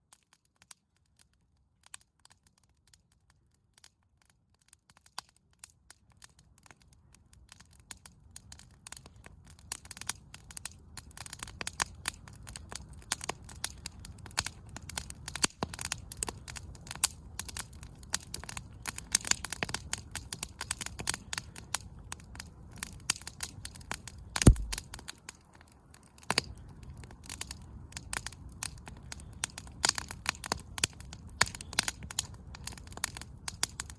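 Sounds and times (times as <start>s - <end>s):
campfire crackling and popping: 4.6s - 33.9s
low rumble: 24.5s - 24.8s.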